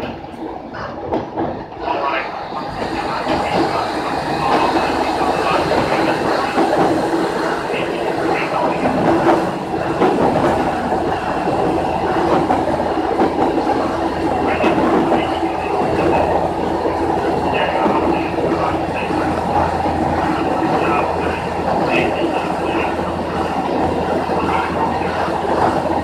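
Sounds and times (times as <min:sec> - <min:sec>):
diesel railcar engine hum: 0:00.0 - 0:26.0
train rolling noise: 0:00.0 - 0:26.0
wheels clacking over rail joints: 0:00.0 - 0:26.0.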